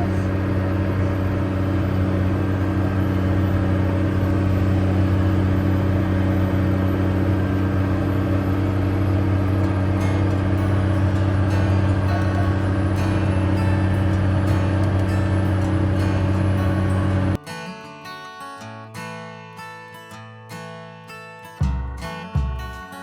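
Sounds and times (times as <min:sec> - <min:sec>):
tractor diesel engine droning: 0:00.0 - 0:17.4.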